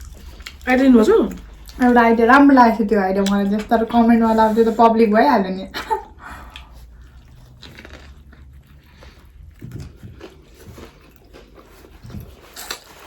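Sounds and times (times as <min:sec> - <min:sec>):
chewing and crunching food: 0:00.0 - 0:02.6, 0:06.4 - 0:13.0.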